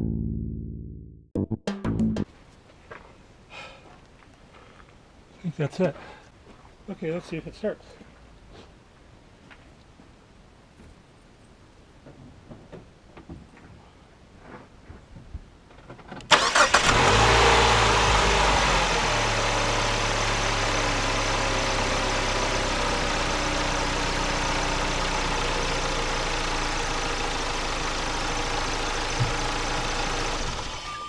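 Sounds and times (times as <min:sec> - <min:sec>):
car engine starting and idling: 0:16.3 - 0:31.0.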